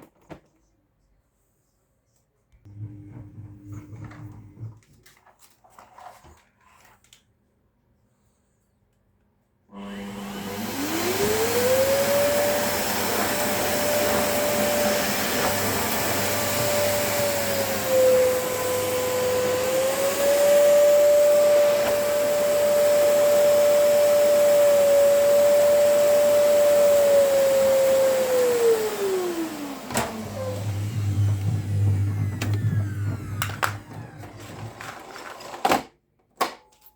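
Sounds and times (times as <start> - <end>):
vacuum cleaner motor whining: 2.7 - 4.8, 9.7 - 35.6.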